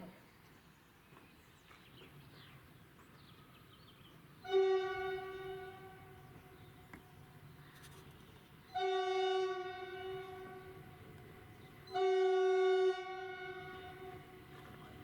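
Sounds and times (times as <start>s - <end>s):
electric train horn blast: 4.4s - 6.2s, 8.7s - 11.1s, 11.8s - 14.4s.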